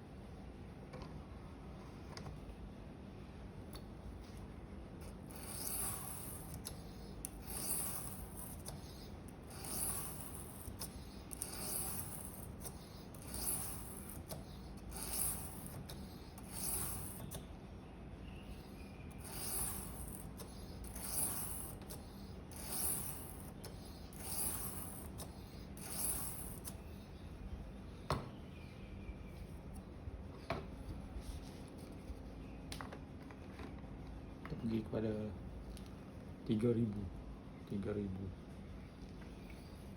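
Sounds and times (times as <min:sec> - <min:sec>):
knife scraping on whetstone: 0:05.3 - 0:17.5, 0:18.6 - 0:26.9.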